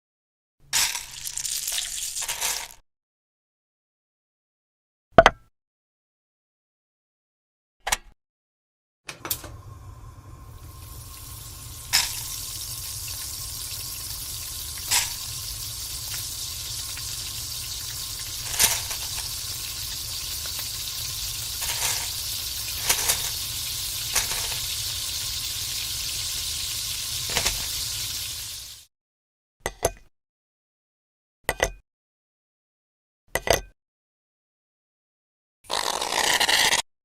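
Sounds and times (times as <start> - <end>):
food sizzling in oil: 0.8 - 2.7, 9.5 - 28.9
oil popping: 9.3 - 28.8.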